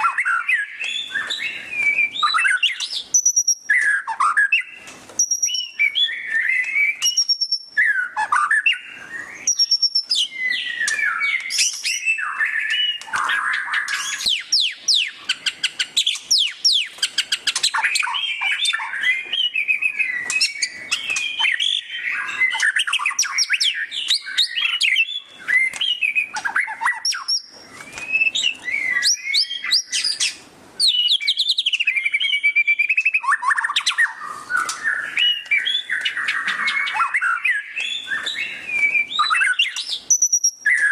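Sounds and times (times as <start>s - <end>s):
bird singing whistled phrases: 0.0s - 40.9s
rapid repeated bird notes: 0.0s - 40.9s.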